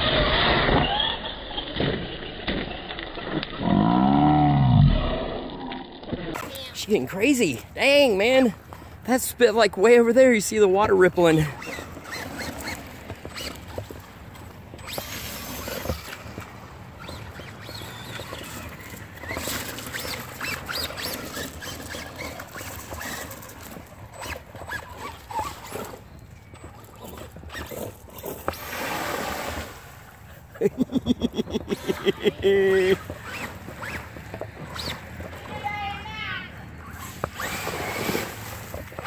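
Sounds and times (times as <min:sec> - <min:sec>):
tyres splashing water and mud: 0:00.0 - 0:35.2, 0:36.9 - 0:39.0
electric motors whining: 0:11.4 - 0:29.6, 0:36.7 - 0:38.4.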